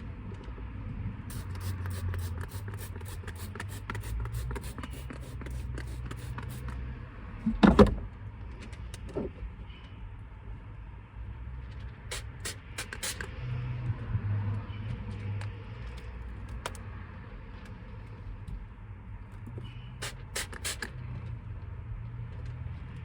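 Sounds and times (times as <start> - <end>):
spray bottle squirting: 1.3 - 6.8, 12.1 - 13.3, 20.0 - 20.9.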